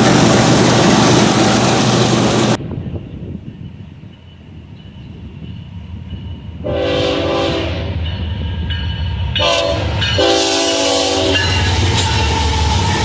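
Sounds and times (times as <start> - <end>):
moving train rumble: 0.0 - 13.0
locomotive air horn blasts: 6.6 - 8.0, 9.4 - 12.9.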